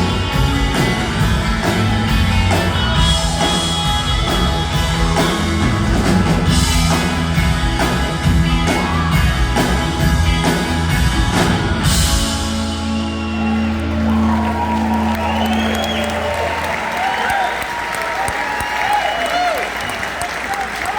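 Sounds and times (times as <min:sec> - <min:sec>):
drum kit beat: 0:00.0 - 0:13.0
guitars: 0:00.0 - 0:16.5.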